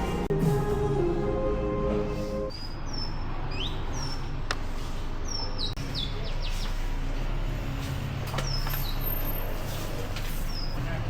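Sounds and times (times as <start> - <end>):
small birds chirping: 2.5 - 4.4, 5.2 - 6.9, 8.4 - 9.2, 10.4 - 10.8.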